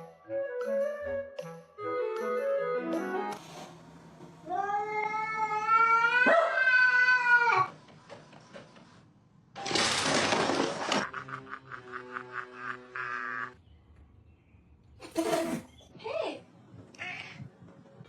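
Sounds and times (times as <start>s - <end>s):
cat meowing: 4.5s - 7.7s, 17.0s - 17.5s.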